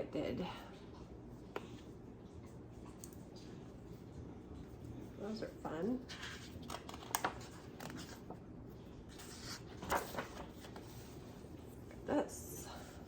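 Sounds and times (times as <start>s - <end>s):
paper rustling: 6.1s - 8.4s, 9.1s - 11.4s.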